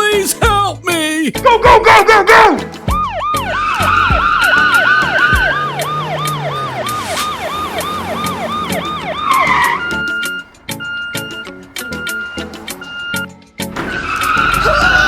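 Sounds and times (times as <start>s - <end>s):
cartoon siren yelping: 1.8s - 11.2s.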